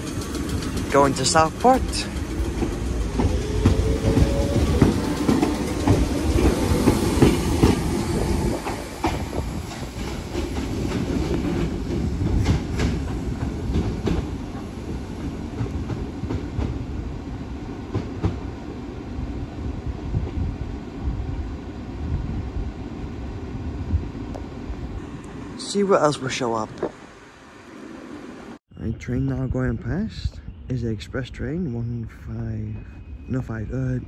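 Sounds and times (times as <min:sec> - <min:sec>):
wheels clacking over rail joints: 0:00.0 - 0:16.9
electric train pulling out: 0:00.0 - 0:19.4.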